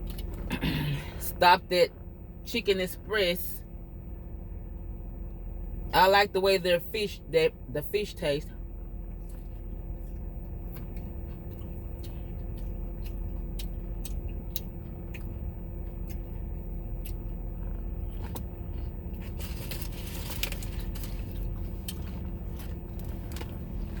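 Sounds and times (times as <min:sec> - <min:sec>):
car engine humming: 0:00.0 - 0:24.0
food bag rustling: 0:19.2 - 0:24.0.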